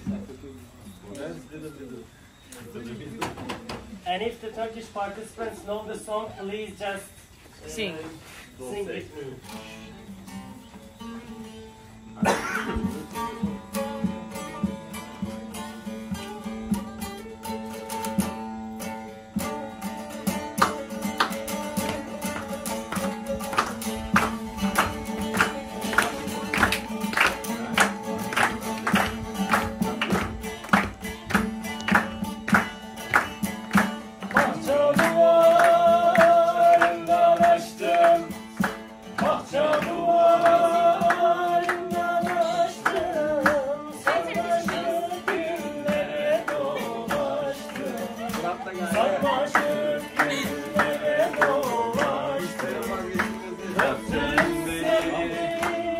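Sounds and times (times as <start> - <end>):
plucked string instrument strumming: 9.4 - 55.9
people singing along: 34.1 - 55.9.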